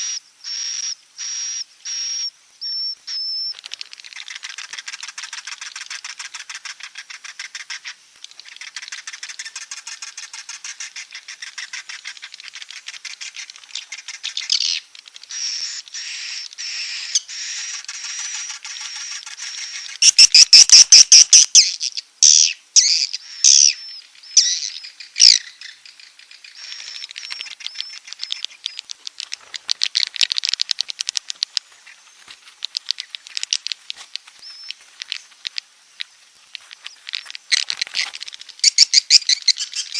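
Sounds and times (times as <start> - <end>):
swiftlets twittering: 26.5 - 39.9.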